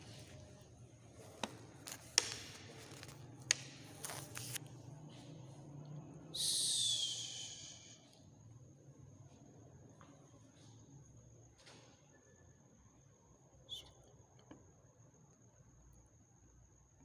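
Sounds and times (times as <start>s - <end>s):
faint steady high whine: 0.0s - 17.0s.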